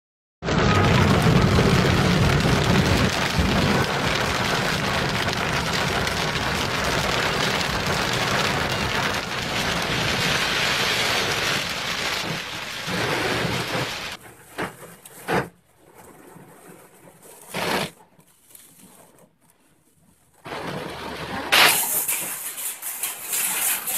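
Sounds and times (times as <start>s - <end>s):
heavy rain pouring: 0.4s - 14.2s.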